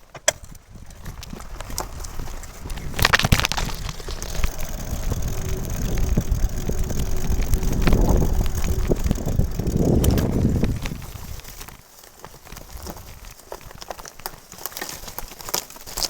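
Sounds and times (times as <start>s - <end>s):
wind buffeting microphone: 0.4s - 11.8s
tyres rumbling on track: 2.6s - 11.6s
faint steady whine: 2.6s - 11.7s.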